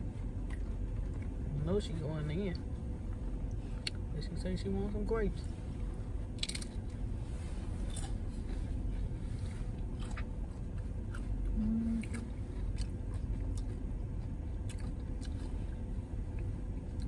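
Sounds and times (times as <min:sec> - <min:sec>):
person chewing crunchy food: 0:00.1 - 0:01.5, 0:06.2 - 0:17.0
brief low hum: 0:05.3 - 0:17.0.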